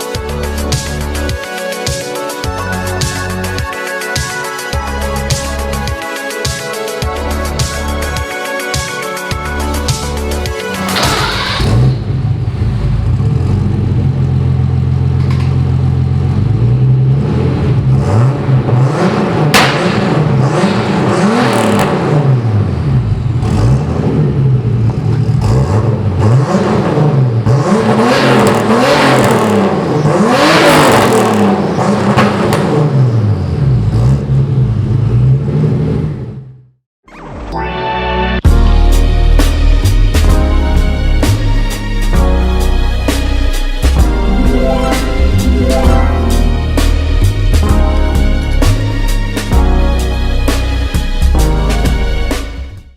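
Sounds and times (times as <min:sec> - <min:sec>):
car engine revving through gear shifts: 0:10.6 - 0:36.4.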